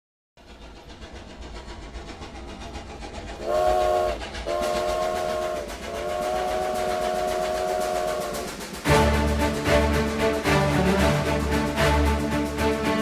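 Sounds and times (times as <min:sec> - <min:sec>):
train rumbling on rails: 0:00.4 - 0:13.0
train chime whistle blasts: 0:03.4 - 0:08.5.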